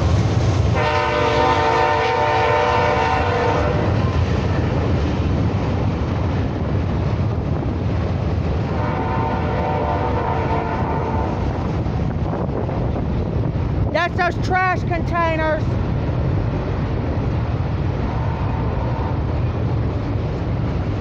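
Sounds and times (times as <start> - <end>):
freight train rumble: 0.0 - 21.0
locomotive air horn: 0.8 - 4.0, 8.8 - 11.4.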